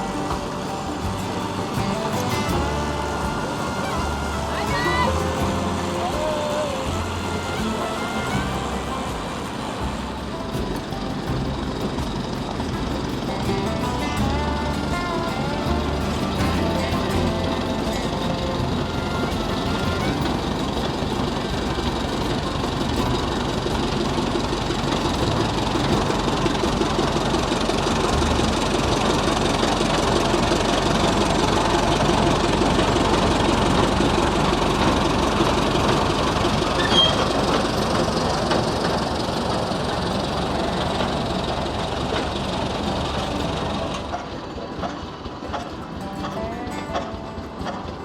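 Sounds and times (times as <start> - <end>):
steam traction engine clattering: 0.0 - 48.0.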